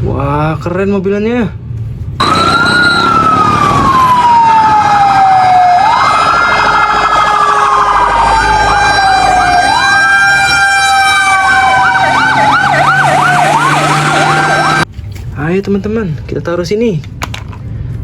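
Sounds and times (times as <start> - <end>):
fast warbling siren: 2.2 - 14.9
toy fire truck siren wailing: 2.2 - 14.9.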